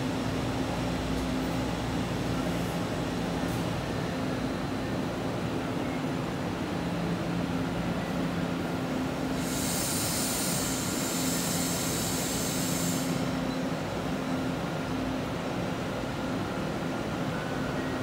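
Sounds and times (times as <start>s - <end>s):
hiss: 9.3s - 13.4s.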